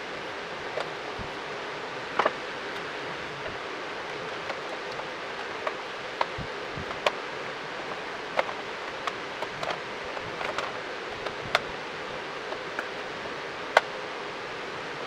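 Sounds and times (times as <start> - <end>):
steady background hiss: 0.0 - 15.0
tools clicking and tapping: 4.5 - 7.2, 8.3 - 11.8.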